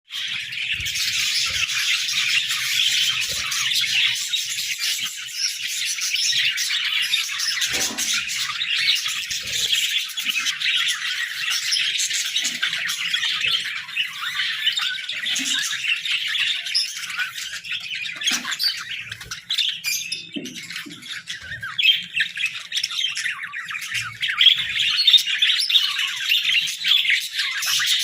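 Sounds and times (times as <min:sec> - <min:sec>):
budgerigars chirping: 0:00.1 - 0:28.0.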